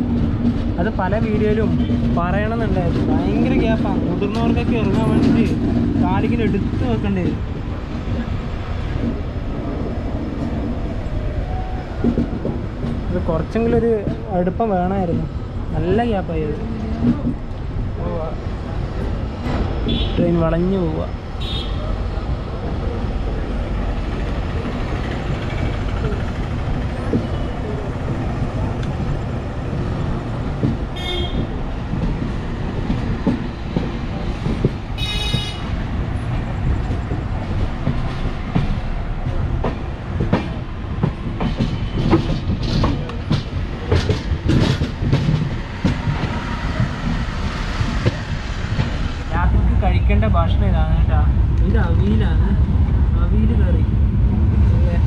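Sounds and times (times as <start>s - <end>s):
train wheels rumbling on rail: 0.0s - 55.0s
wheel clacks over rail joints: 23.3s - 49.3s
train horn toots: 31.0s - 31.5s, 35.0s - 35.7s.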